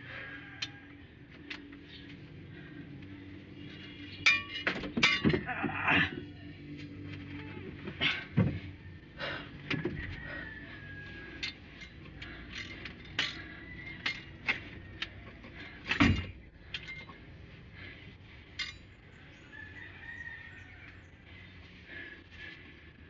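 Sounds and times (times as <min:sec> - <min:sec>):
heavy metal clank: 0:04.2 - 0:06.1, 0:15.5 - 0:17.1.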